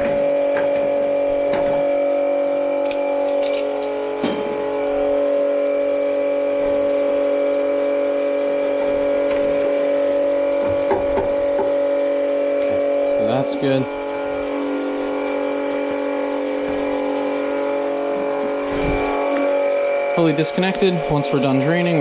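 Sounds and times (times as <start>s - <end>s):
motor hum with pitched tones: 0.0s - 22.0s
knock: 10.8s - 11.7s.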